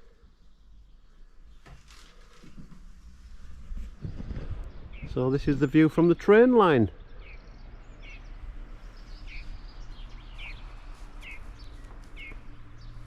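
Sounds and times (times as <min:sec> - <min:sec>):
outdoor background noise: 0:00.0 - 0:13.0
small bird chirping: 0:07.0 - 0:13.0.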